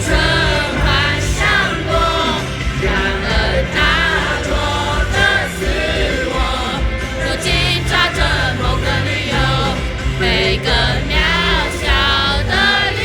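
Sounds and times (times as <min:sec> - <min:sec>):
pop-rock band playing: 0:00.0 - 0:13.0
voices singing with vibrato: 0:00.0 - 0:13.0.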